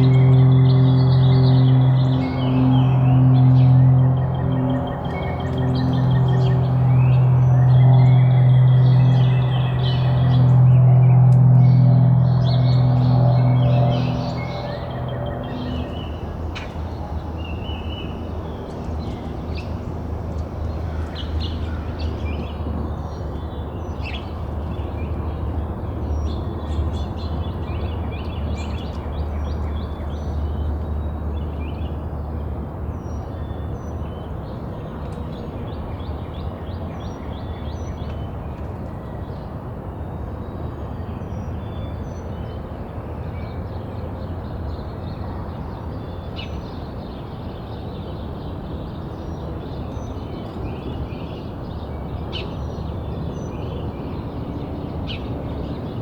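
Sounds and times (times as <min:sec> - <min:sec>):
steady low rumble: 0:00.0 - 0:27.3
birds chirping: 0:00.0 - 0:30.8.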